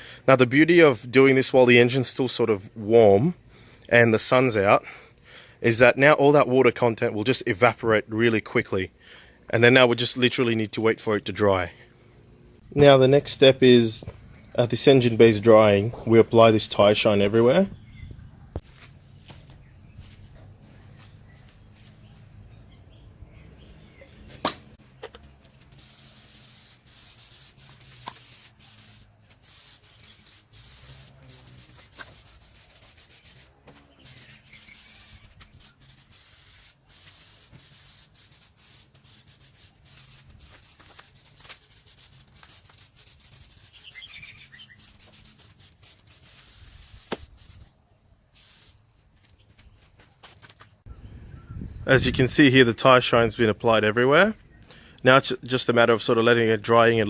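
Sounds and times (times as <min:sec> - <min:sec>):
spray hissing in bursts: 0:25.7 - 0:47.7, 0:48.4 - 0:48.8.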